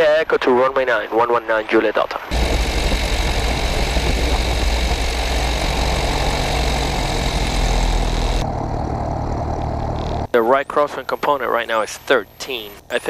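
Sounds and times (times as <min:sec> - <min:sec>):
propeller engine drone: 0:02.2 - 0:10.3
cabin hiss: 0:02.3 - 0:08.4.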